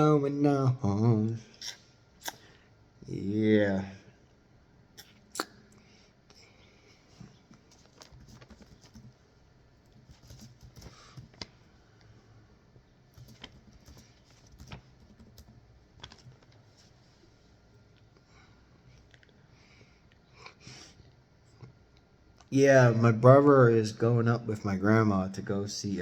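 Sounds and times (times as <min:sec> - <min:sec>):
faint keyboard typing and clicking: 0:07.6 - 0:09.2, 0:09.8 - 0:11.6, 0:13.1 - 0:16.7.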